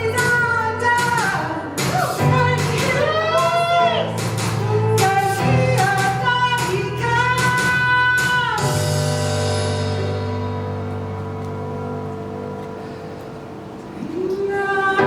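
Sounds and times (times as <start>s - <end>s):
person singing: 0.0s - 8.8s, 14.0s - 15.0s
instrumental backing: 0.0s - 15.0s.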